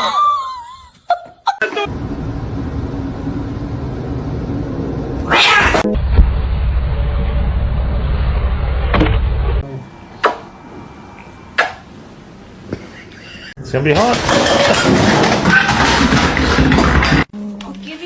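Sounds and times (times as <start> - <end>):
steady low rumble: 1.9 - 5.3
cat crying: 5.3 - 5.9.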